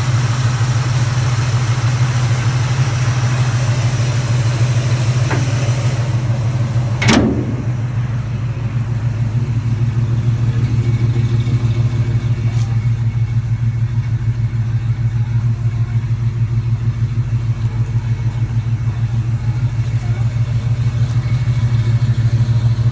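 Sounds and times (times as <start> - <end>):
truck engine idling: 0.0 - 22.9.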